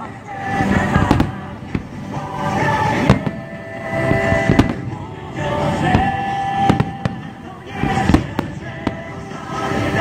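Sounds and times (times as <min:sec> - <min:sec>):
fireworks shells bursting: 0:00.5 - 0:09.9.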